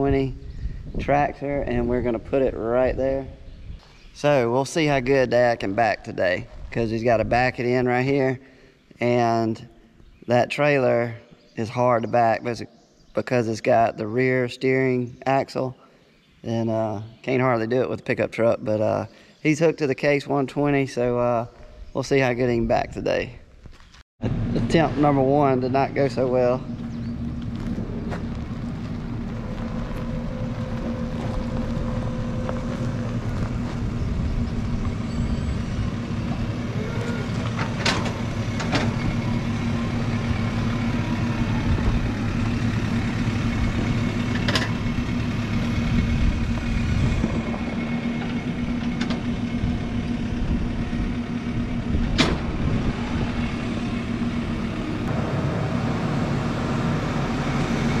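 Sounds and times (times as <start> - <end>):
tractor engine running: 24.2 - 58.0.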